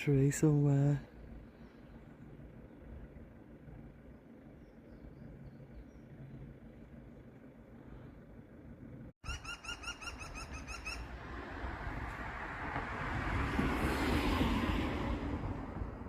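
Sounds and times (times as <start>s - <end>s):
woodpecker laughing call: 9.2s - 11.0s.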